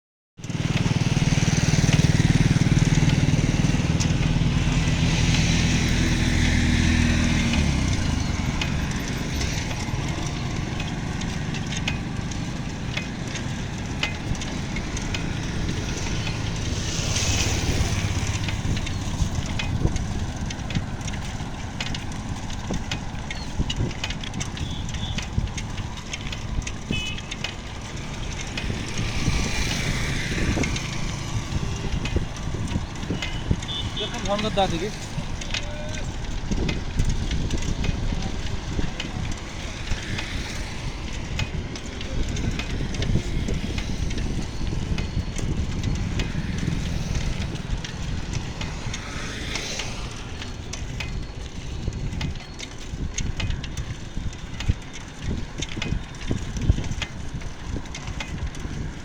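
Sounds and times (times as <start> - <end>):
engine humming: 0.4 - 59.0
small clicks and crackles: 0.4 - 59.0.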